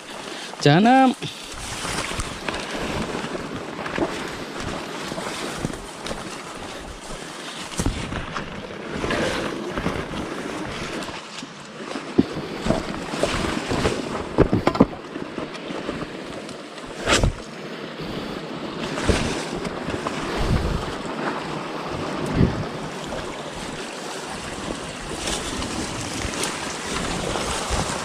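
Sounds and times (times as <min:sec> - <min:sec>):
wind buffeting microphone: 0:16.9 - 0:28.0.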